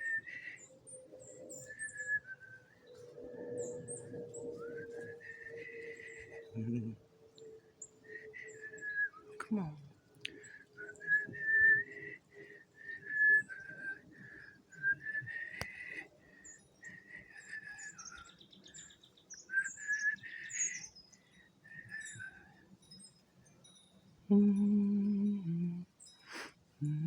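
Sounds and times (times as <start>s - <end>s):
faint high bird chirps: 0.0s - 27.0s
person whistling short notes: 10.9s - 12.1s.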